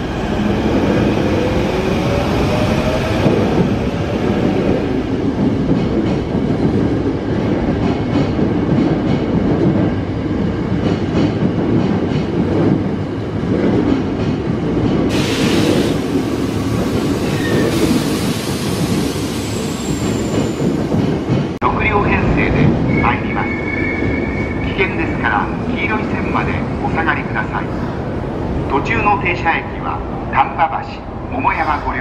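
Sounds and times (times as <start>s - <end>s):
train wheels clickety-clack: 5.4s - 21.6s
hiss: 15.1s - 19.8s.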